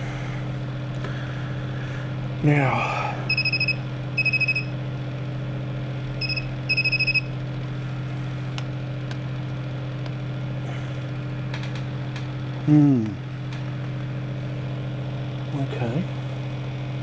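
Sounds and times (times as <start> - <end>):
low electrical hum: 0.0 - 17.0
voltage tester beeping: 3.3 - 4.8, 6.2 - 7.4.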